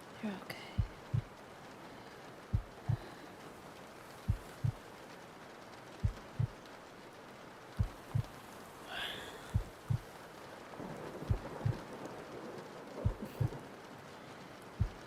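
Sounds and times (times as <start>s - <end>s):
rain hissing: 0.0s - 15.0s
heartbeat thumps: 0.8s - 1.4s, 2.5s - 3.2s, 4.3s - 4.8s, 6.0s - 6.6s, 7.8s - 8.4s, 9.4s - 10.1s, 11.2s - 11.8s, 13.0s - 13.6s, 14.8s - 15.0s.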